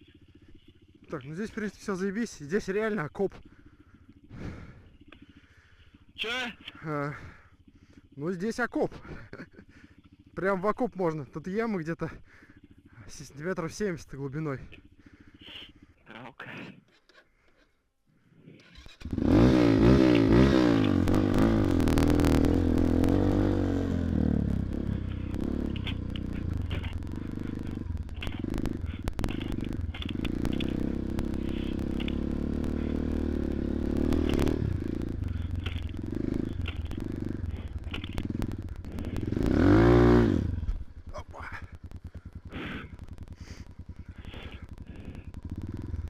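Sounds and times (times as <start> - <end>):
motorcycle engine revving: 0.0 - 8.2, 18.4 - 46.0.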